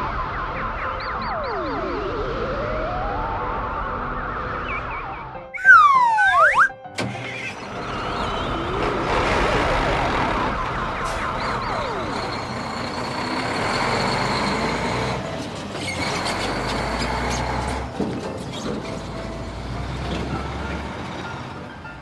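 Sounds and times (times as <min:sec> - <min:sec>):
music: 0:00.0 - 0:12.6, 0:17.7 - 0:22.0
cartoon whistle glides: 0:05.6 - 0:06.8
cartoon vehicle effects: 0:05.6 - 0:12.7.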